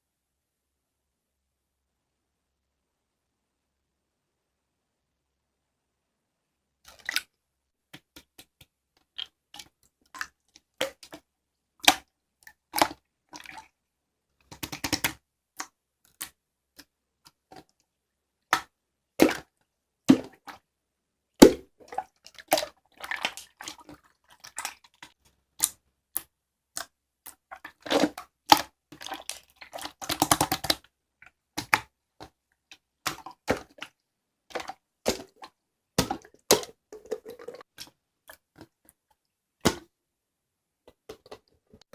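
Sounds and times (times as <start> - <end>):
crackling slime squelches: 21.4 - 39.9.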